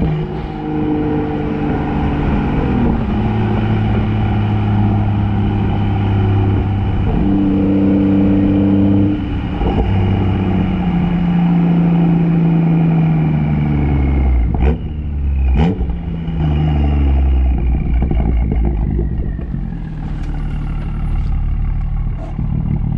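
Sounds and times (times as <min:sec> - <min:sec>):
car engine revving through gears: 0:00.0 - 0:22.9
exhaust pops and crackles: 0:17.4 - 0:22.9.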